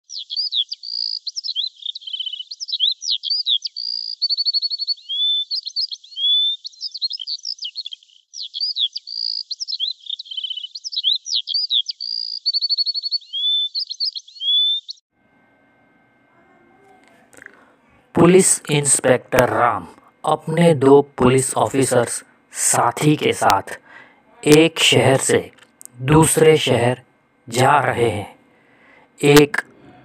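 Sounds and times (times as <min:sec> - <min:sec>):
songbird singing: 0:00.0 - 0:15.1.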